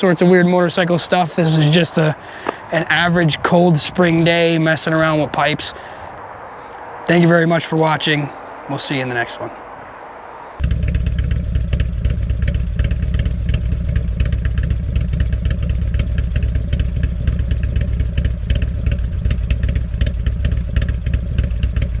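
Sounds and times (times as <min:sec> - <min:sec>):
motorcycle engine idling: 0:10.6 - 0:22.0.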